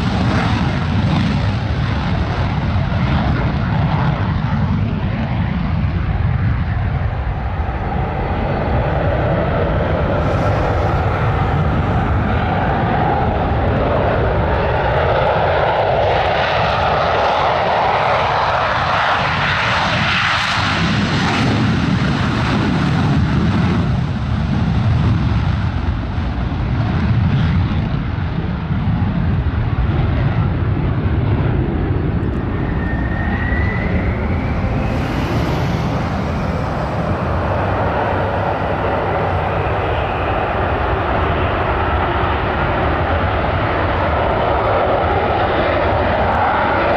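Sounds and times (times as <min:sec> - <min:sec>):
aircraft engine flyby: 0:00.0 - 0:46.9
short rising whistle: 0:32.2 - 0:41.4.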